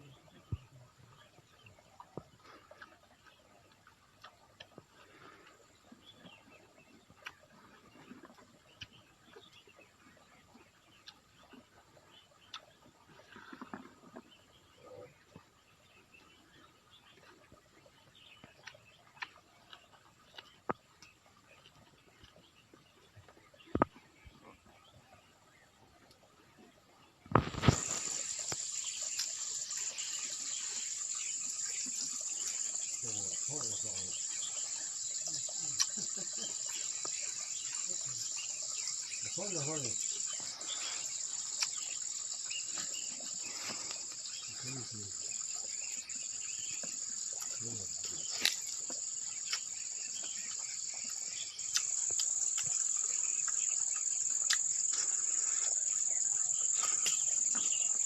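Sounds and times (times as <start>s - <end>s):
insect chorus trilling: 27.3s - 58.0s.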